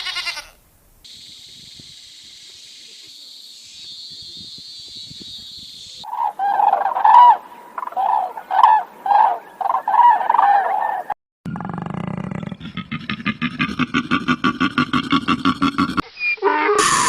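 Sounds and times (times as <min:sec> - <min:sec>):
fowl calling loudly: 0:00.0 - 0:00.6, 0:06.0 - 0:11.1
steady high hiss: 0:00.6 - 0:06.1.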